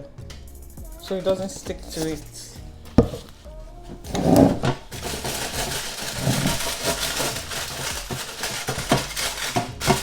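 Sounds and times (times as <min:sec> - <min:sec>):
aluminium foil crinkling: 0:03.2 - 0:10.0.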